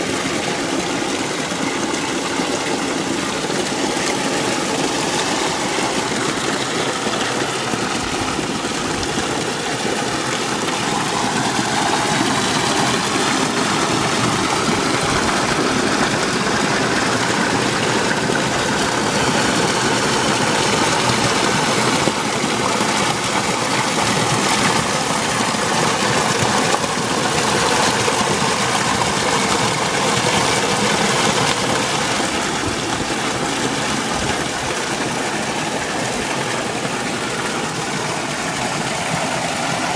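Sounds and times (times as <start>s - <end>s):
water splashing from spring: 0.0s - 39.9s.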